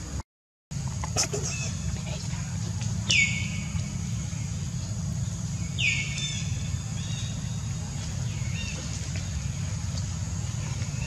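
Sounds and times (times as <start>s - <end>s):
steady low rumble: 0.0s - 11.0s
bird chirps: 3.0s - 11.0s.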